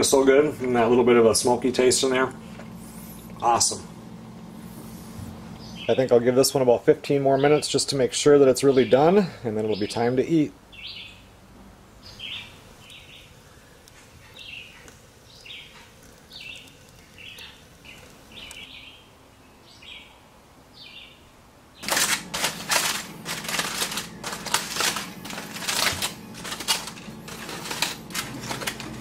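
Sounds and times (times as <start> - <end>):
bird chirping: 5.5 - 6.2, 10.7 - 11.3, 12.0 - 21.9
aluminum foil crinkling: 14.8 - 18.6, 21.8 - 29.0.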